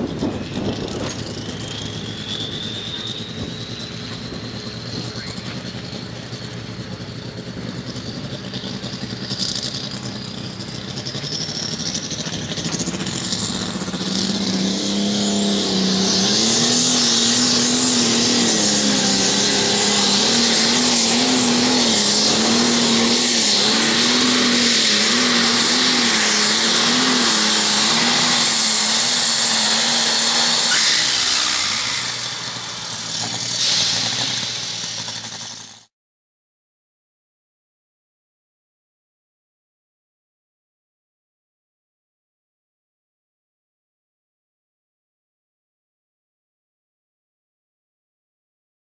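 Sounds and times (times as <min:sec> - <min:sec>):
tractor engine at full power: 0:00.0 - 0:35.9.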